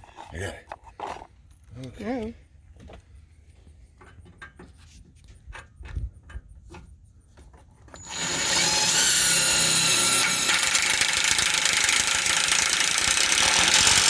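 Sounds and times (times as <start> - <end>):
power drill whining: 8.0 - 14.0.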